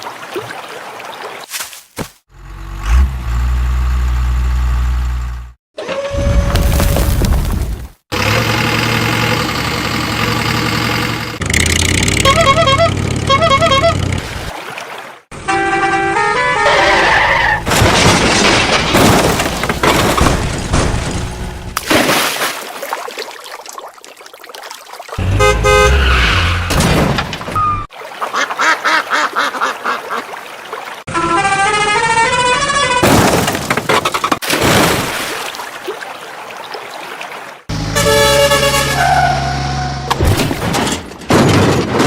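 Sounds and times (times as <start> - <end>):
vehicle engine noise: 8.1 - 14.5
vehicle horns honking: 12.0 - 14.2, 15.4 - 17.1, 25.2 - 26.7, 31.1 - 33.1, 37.7 - 40.1.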